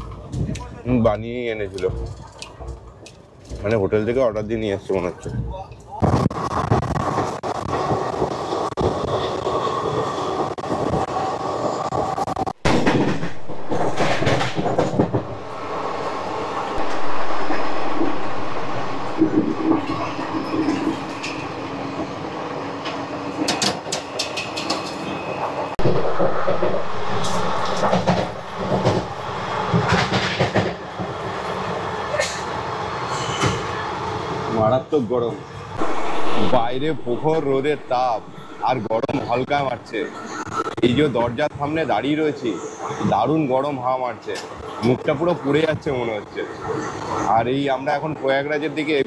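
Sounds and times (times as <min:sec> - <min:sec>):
train wheels clattering over rails: 0:06.1 - 0:15.9, 0:16.8 - 0:32.5.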